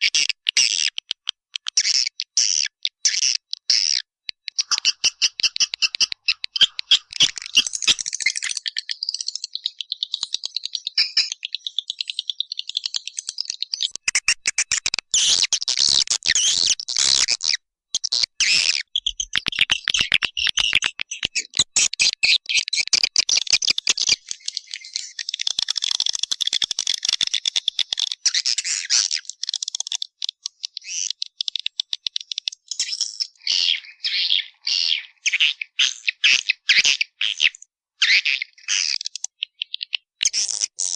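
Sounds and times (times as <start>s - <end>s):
fast bird twittering: 4.5s - 27.4s.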